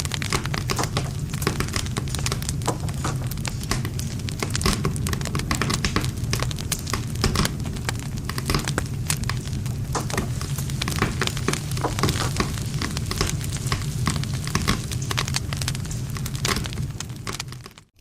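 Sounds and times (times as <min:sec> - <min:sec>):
campfire burning: 0:00.0 - 0:18.0.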